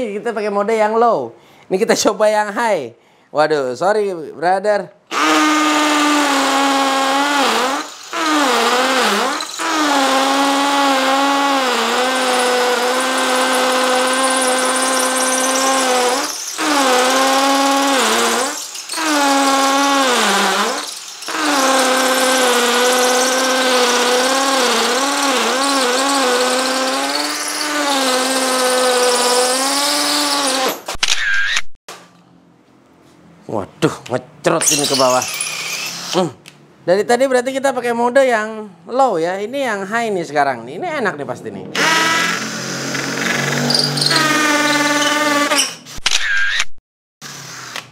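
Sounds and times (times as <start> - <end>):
impact drill drilling into concrete: 5.1 - 31.5, 34.6 - 36.2, 41.8 - 46.6.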